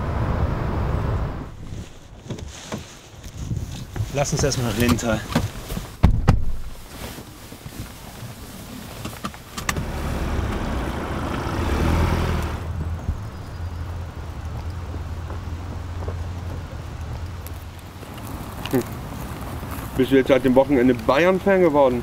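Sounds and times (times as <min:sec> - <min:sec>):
car engine pulling away: 0:09.5 - 0:21.8.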